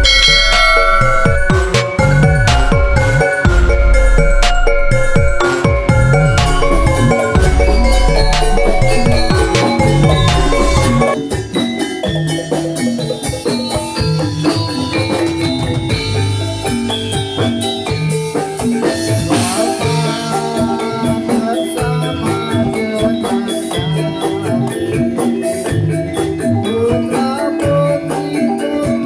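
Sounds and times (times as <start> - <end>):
drumming: 0.0 - 26.4
metal-keyed instruments ringing: 0.0 - 26.7.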